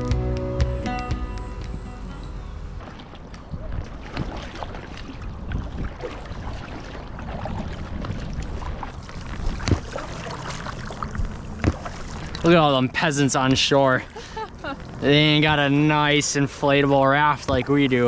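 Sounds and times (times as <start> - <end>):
water splashing from oars: 2.1 - 18.0
wind on microphone: 2.6 - 12.3.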